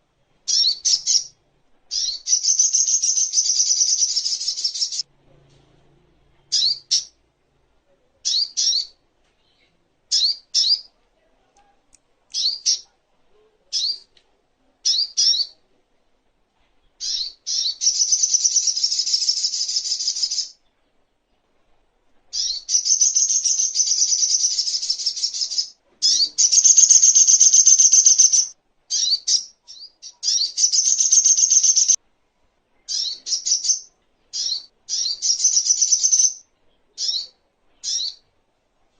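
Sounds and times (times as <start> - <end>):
bird fast twittering: 22.4 - 32.0.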